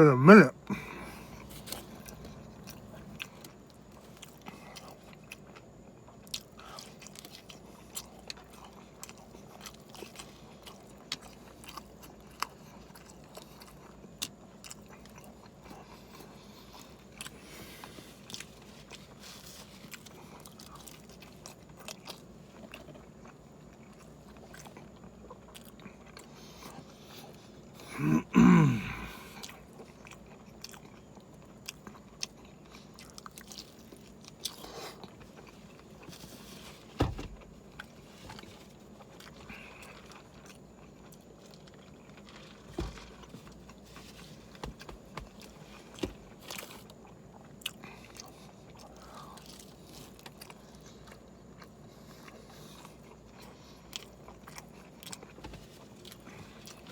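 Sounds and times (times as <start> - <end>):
loud throat sound: 0.0 - 1.0, 27.8 - 29.4
person chewing food: 0.3 - 56.9.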